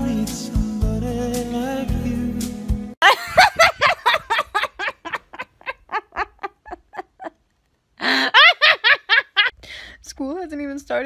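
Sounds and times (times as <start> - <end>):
girl giggling: 3.0 - 7.4, 8.0 - 9.5
sharp gasping inhale: 9.6 - 10.0.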